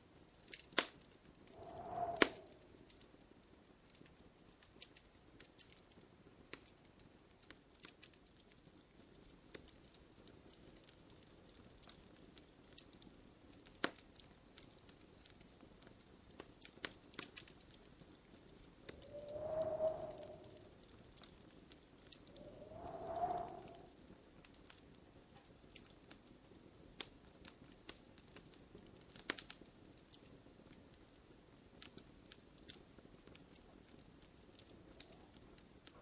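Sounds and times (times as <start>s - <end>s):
faint fire hiss: 0.0s - 36.0s
wood fire crackling: 0.0s - 36.0s
whistling tone: 1.6s - 2.5s, 19.0s - 20.7s, 22.4s - 23.9s.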